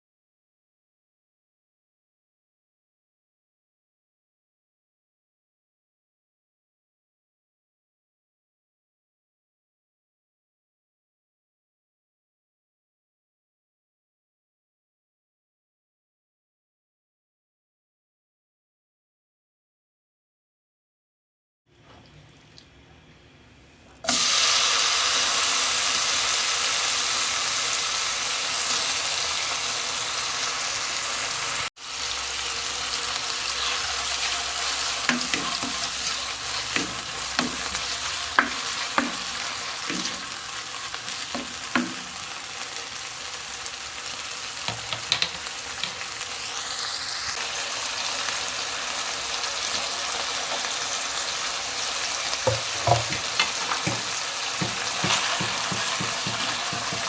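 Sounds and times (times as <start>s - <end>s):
food sizzling in hot oil: 24.1s - 57.0s
utensil scraping a pan: 33.5s - 42.2s, 52.5s - 57.0s.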